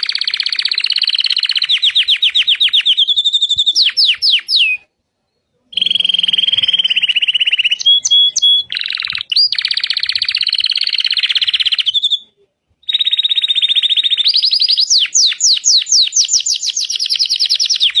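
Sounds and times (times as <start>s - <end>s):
canary singing trills: 0.0s - 18.0s.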